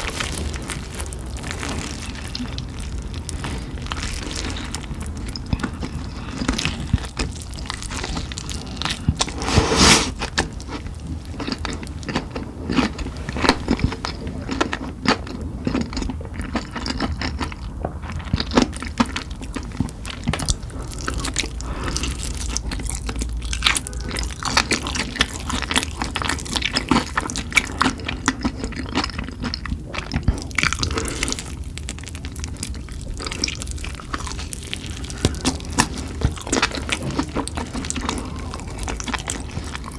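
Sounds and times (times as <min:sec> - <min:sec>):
chewing mouth sounds: 0:03.4 - 0:39.9
loud bite: 0:09.2 - 0:10.4.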